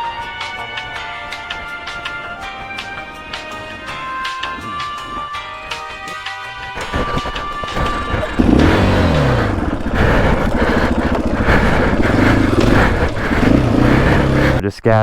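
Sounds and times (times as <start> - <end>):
dirt bike engine revving: 0.0 - 5.2, 6.6 - 14.6
background music: 0.0 - 9.6.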